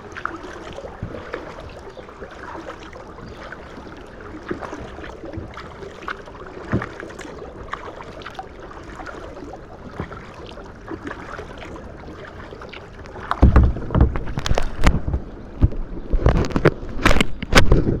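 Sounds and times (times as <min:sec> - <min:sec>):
paddle splashing water: 0:00.0 - 0:18.0
rumbling knocks and cracks: 0:13.3 - 0:18.0.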